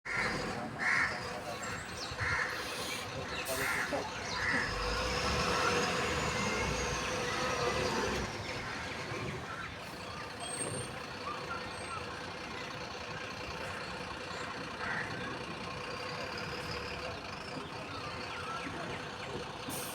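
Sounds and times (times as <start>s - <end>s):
truck unloading soil: 2.6s - 11.2s, 19.0s - 19.9s.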